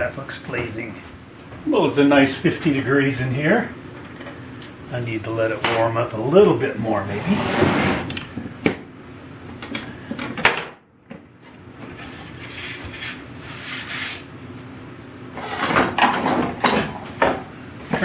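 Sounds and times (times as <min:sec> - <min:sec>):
wooden drawers sliding and knocking: 0:07.1 - 0:08.5.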